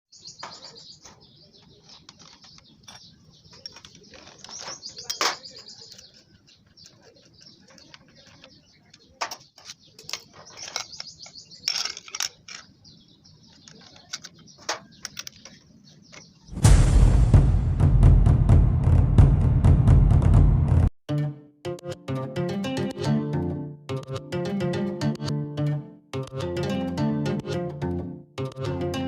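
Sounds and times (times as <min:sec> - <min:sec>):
birds chirping: 0:00.1 - 0:16.6
sharp clicks and knocks: 0:00.4 - 0:12.7.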